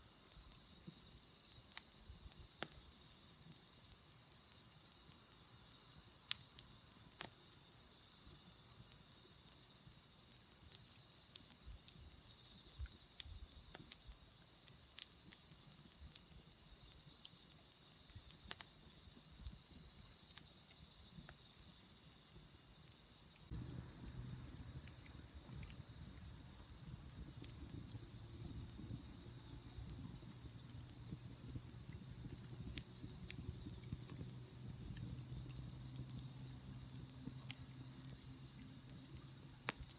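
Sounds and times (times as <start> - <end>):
crickets trilling: 0.0 - 39.9
low steady hum: 23.5 - 38.8.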